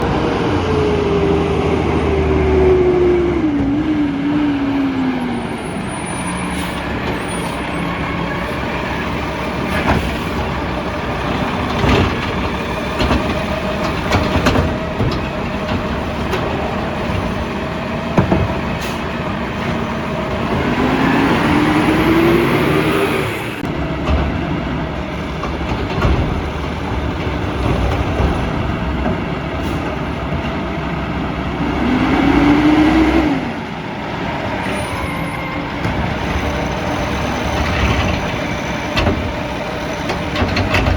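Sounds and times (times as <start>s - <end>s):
truck engine revving: 0.0s - 40.9s
sharp clanks and knocks: 11.3s - 17.4s, 18.1s - 19.8s, 25.3s - 30.6s, 37.4s - 40.9s.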